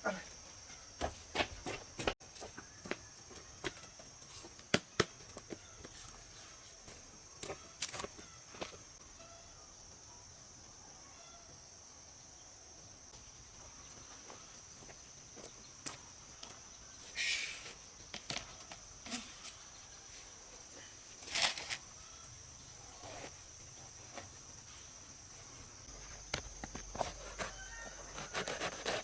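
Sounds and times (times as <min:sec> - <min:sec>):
insects droning: 0:00.0 - 0:29.0
scuffing noises: 0:00.7 - 0:04.6.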